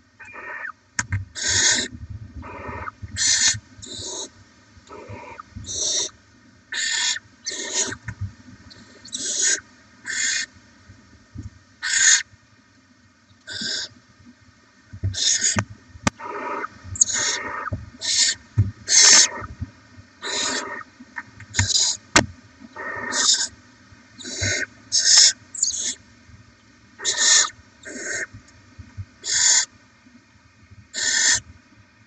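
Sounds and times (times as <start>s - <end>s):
owl chicks hissing calls: 0.2s - 0.7s, 1.4s - 4.3s, 4.9s - 8.1s, 8.7s - 10.5s, 11.8s - 12.2s, 13.5s - 13.9s, 15.1s - 19.5s, 20.2s - 20.9s, 21.5s - 23.6s, 24.2s - 26.0s, 27.0s - 28.3s, 29.2s - 29.7s, 30.9s - 31.4s.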